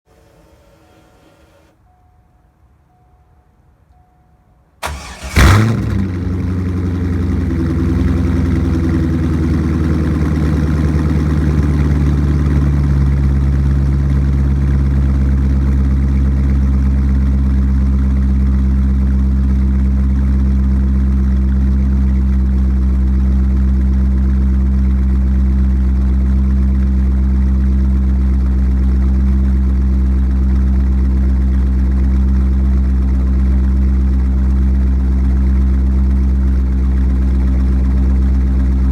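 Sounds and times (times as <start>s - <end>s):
car engine idling: 4.8s - 38.9s
car engine starting: 4.8s - 38.9s.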